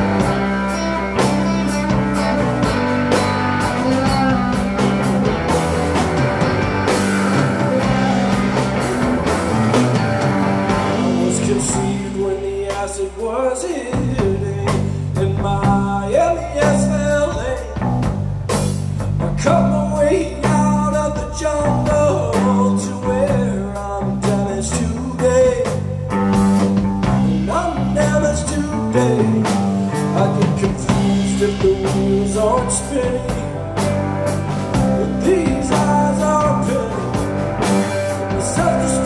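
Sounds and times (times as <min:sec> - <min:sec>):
person singing: 0:00.0 - 0:17.9, 0:27.4 - 0:33.9, 0:34.8 - 0:39.0
live rock band playing: 0:00.0 - 0:39.0.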